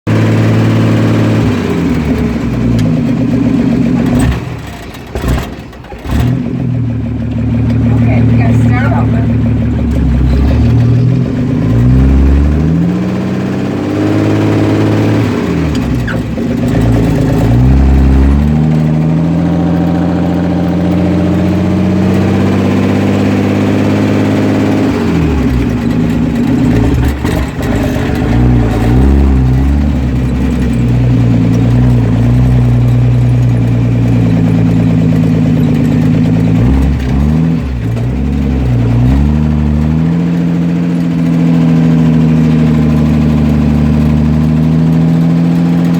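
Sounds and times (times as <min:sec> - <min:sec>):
truck engine revving: 0:00.1 - 0:45.9.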